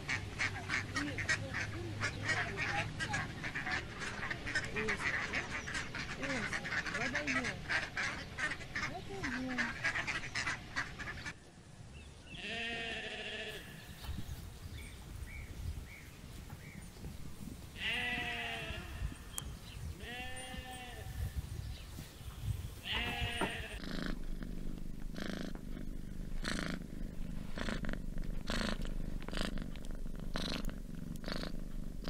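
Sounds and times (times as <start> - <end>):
sheep bleating: 12.4 - 13.8, 17.8 - 19.2, 20.0 - 21.2, 22.8 - 23.8
cat purring: 23.4 - 32.0.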